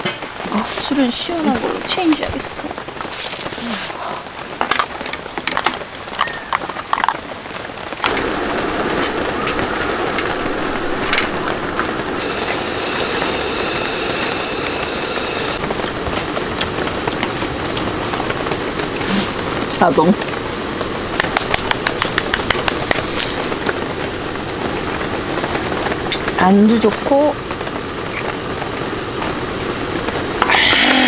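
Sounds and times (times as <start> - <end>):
steady rain: 0.0 - 31.0
faint high whine: 8.0 - 16.0.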